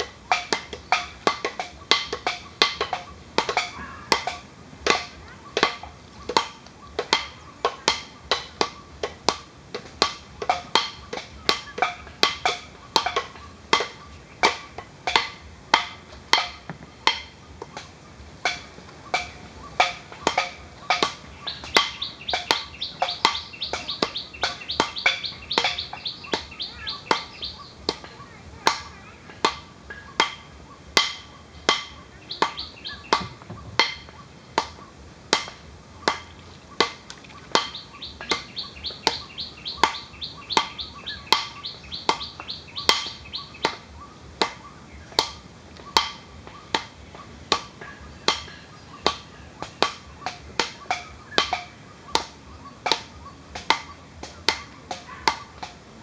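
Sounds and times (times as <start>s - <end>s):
high-pitched bird chirping: 19.0s - 29.2s, 31.9s - 34.3s, 36.7s - 45.2s.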